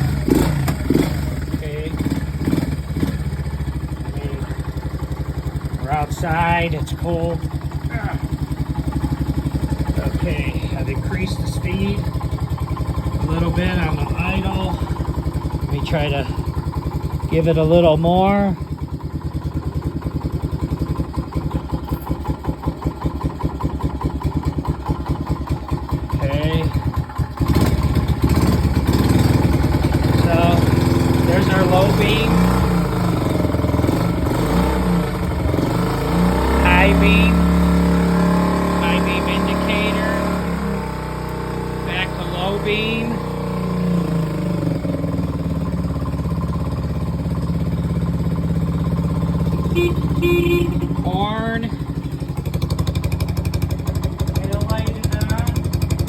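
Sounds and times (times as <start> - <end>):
motorcycle engine idling: 0.0 - 56.0
motorcycle horn beep: 49.4 - 52.4.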